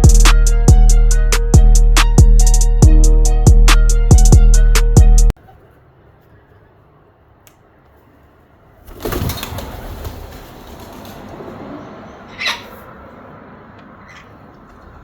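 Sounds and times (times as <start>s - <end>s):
bird wings flapping: 8.8s - 11.6s.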